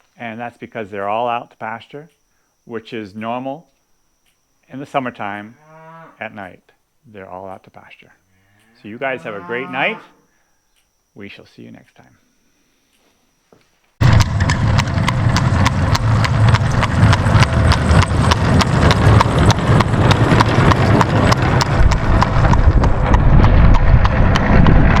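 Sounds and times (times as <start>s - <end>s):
horse hooves clip-clopping: 14.0s - 25.0s
low rumble: 14.0s - 25.0s.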